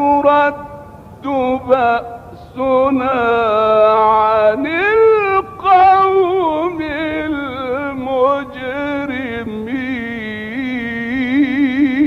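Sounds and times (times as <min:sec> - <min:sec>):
man chanting melodic recitation: 0:00.0 - 0:12.0.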